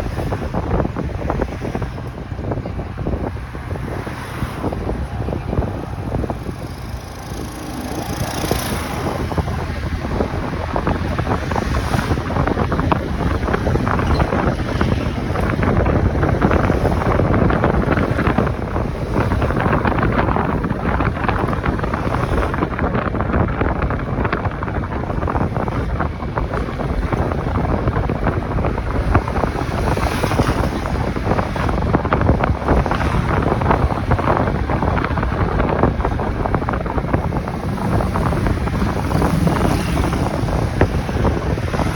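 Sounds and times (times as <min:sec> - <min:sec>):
road noise: 0:00.0 - 0:41.9
wind rushing over microphone: 0:00.0 - 0:41.9.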